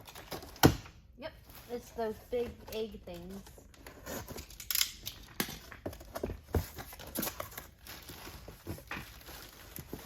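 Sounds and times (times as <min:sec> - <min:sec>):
packaging crinkling and rustling: 0:03.1 - 0:10.0.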